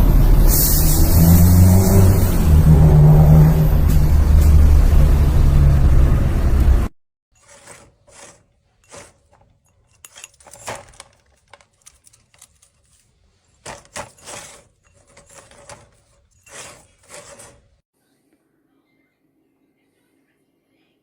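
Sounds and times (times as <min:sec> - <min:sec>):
light clicks taps and rustles: 0:07.4 - 0:17.7.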